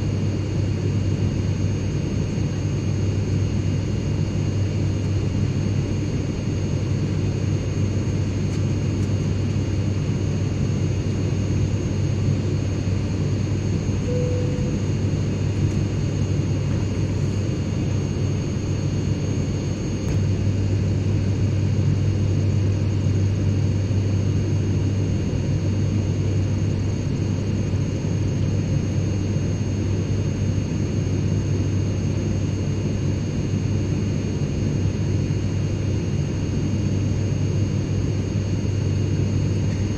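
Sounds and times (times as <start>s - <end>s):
airplane cabin drone: 0.0s - 39.9s
faint high whines: 13.9s - 16.0s.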